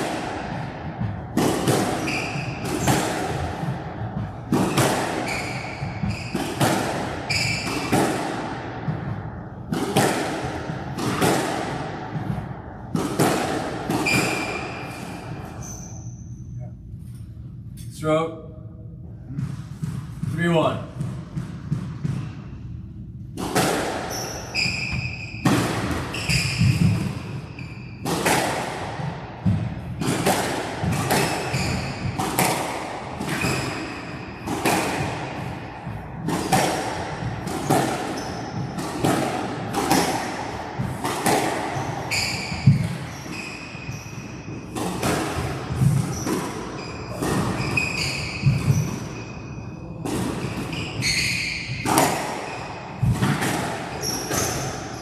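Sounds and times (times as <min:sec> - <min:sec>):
squash ball knocks: 0:00.0 - 0:14.7, 0:23.4 - 0:43.1, 0:51.6 - 0:54.9
shoes squeaking on court: 0:01.9 - 0:03.2, 0:04.6 - 0:06.6, 0:07.3 - 0:08.0, 0:14.0 - 0:17.3, 0:24.1 - 0:28.1, 0:30.8 - 0:32.5, 0:37.6 - 0:38.8, 0:41.2 - 0:55.0.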